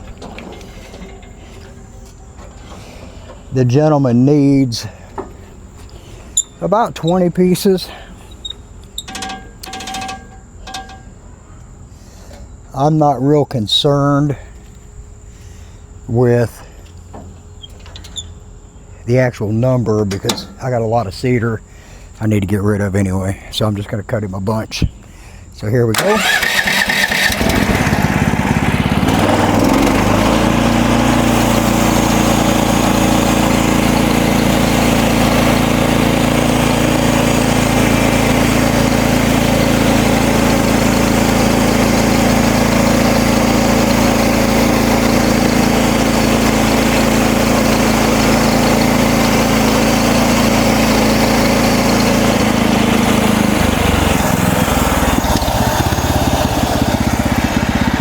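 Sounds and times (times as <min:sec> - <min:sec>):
gas engine running: 0:00.0 - 0:11.1, 0:26.0 - 0:58.0.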